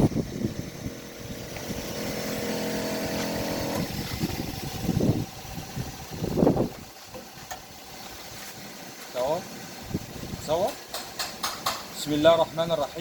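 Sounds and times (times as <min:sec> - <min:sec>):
espresso machine motor hum: 0:00.0 - 0:06.7.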